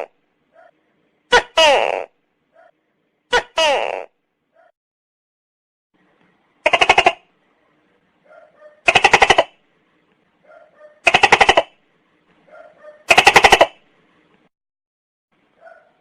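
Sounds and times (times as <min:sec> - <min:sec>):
gecko rattling call: 0:06.6 - 0:07.2, 0:08.8 - 0:09.6, 0:11.0 - 0:11.7, 0:13.1 - 0:13.8.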